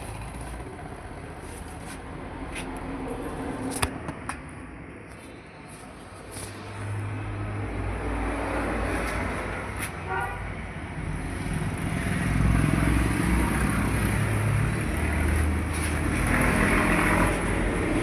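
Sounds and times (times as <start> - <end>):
traffic engine rumble: 0.0 - 18.0
car horn toot: 10.0 - 10.4.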